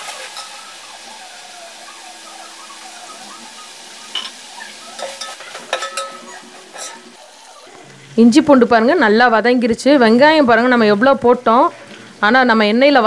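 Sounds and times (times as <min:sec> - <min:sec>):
onions sizzling in oil: 0:00.0 - 0:09.0
metal spoon scraping pot: 0:05.0 - 0:07.2.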